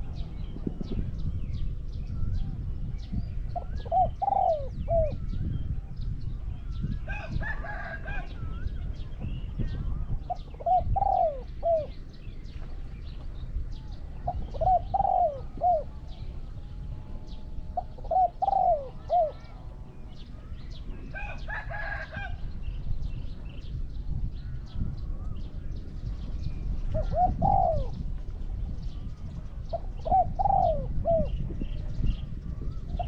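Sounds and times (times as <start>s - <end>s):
small birds chirping: 0.0s - 33.0s
doves cooing: 3.4s - 5.2s, 9.7s - 12.1s, 13.9s - 22.4s, 26.8s - 31.7s.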